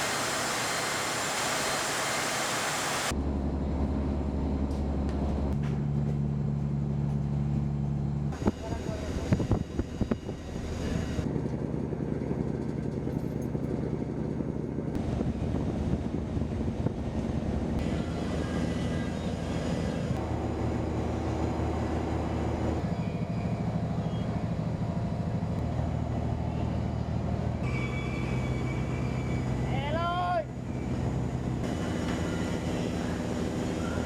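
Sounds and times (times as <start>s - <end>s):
boat engine droning: 0.0s - 3.1s, 6.6s - 11.5s, 15.0s - 34.0s.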